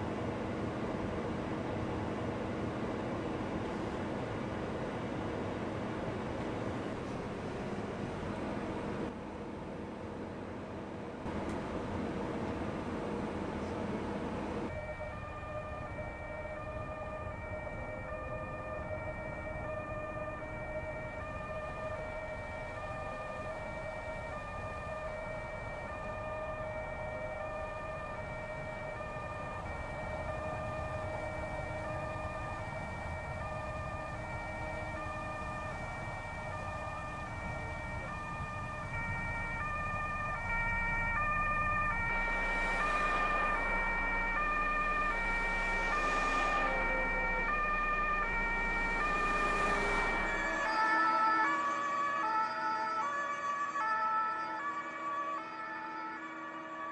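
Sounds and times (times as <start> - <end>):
two-tone siren: 14.6 - 56.9.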